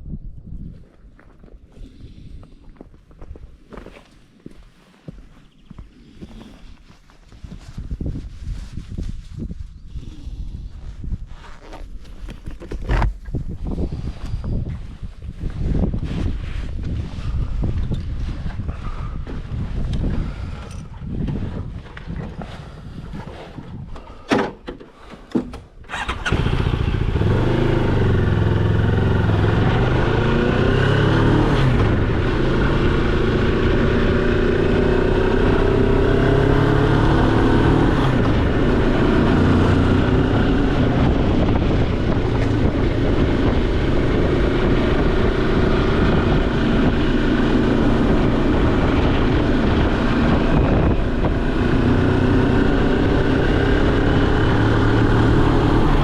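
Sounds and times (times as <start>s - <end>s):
motorcycle engine running: 25.9s - 56.0s.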